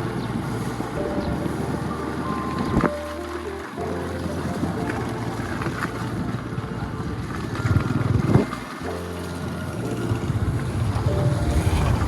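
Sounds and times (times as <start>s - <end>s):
background music: 0.0s - 12.0s
wind on microphone: 0.0s - 12.0s.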